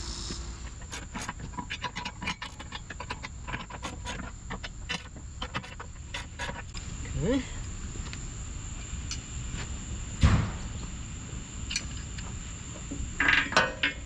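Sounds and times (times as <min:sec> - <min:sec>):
metal scraping: 0:00.0 - 0:06.8.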